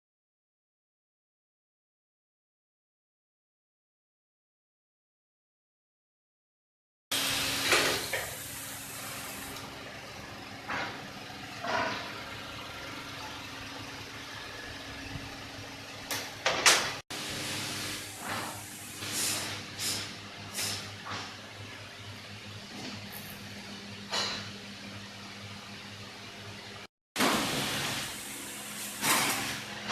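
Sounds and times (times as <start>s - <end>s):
short hissing bursts: 7.2s - 9.6s, 17.3s - 20.8s.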